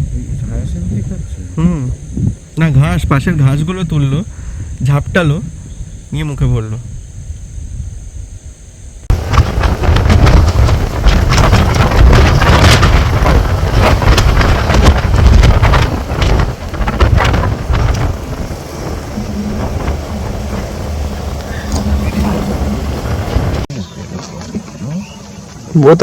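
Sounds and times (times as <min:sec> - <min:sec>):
wind buffeting microphone: 0:00.0 - 0:23.7
insect chirring: 0:00.0 - 0:26.0
vehicle engine hum: 0:08.9 - 0:25.8.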